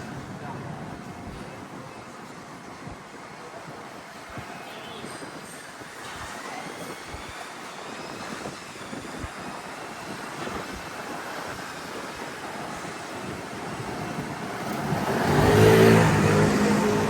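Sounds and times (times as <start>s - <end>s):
city street traffic: 0.0s - 17.0s
wind buffeting microphone: 0.0s - 17.0s.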